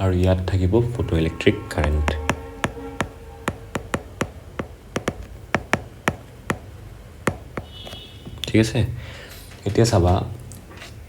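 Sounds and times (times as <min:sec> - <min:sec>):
pen tapping on paper: 0:02.1 - 0:08.4.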